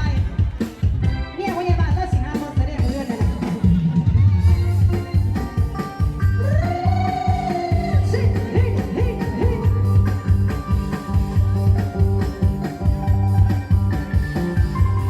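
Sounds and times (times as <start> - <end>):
steady bass beat: 3.8 - 15.0
electronic keyboard melody: 4.6 - 15.0.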